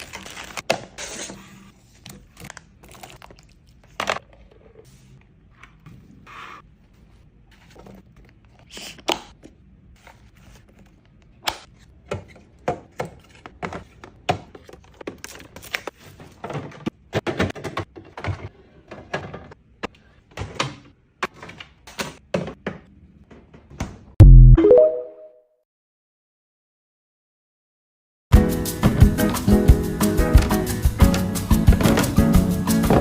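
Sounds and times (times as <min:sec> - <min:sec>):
items clicking in a refrigerator: 0:11.0 - 0:19.6, 0:20.3 - 0:24.1.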